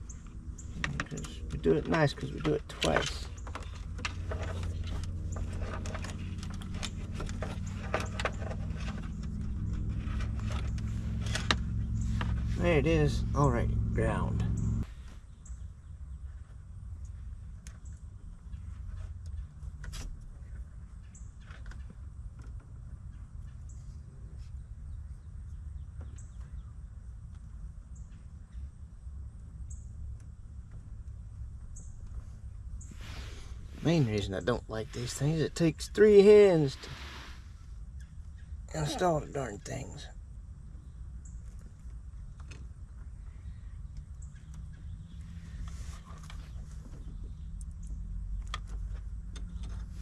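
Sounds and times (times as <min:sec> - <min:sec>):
steady low rumble: 0:00.0 - 0:19.6
steady low hum: 0:00.0 - 0:21.0, 0:21.9 - 0:50.0
wiring connectors clicking and rustling: 0:00.6 - 0:12.0
clicks of wire connectors and tools: 0:00.8 - 0:04.7.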